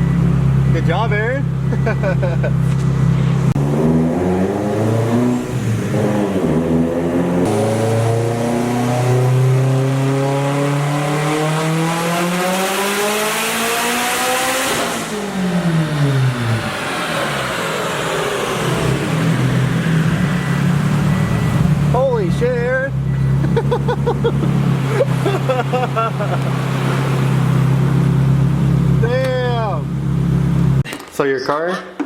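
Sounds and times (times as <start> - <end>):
engine revving at full throttle: 3.4 - 22.3, 23.0 - 30.8.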